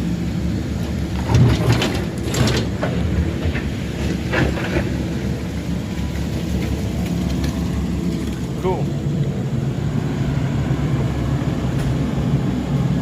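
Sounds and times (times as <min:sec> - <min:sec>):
heavy machine engine running: 0:00.0 - 0:13.0
scraping and clattering in mud: 0:00.8 - 0:08.6.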